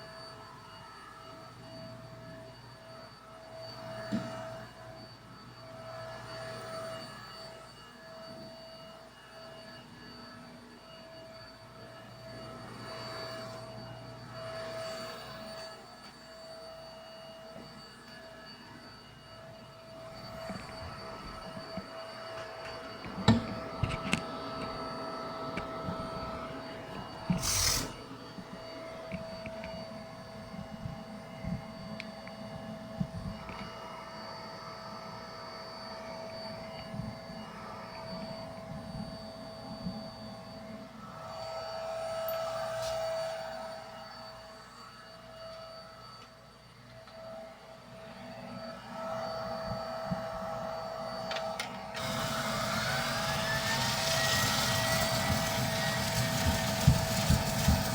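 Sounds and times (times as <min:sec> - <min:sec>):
vacuum cleaner whine: 0:00.0 - 0:57.9
vacuum tool knocking: 0:22.6 - 0:26.3, 0:52.0 - 0:57.9.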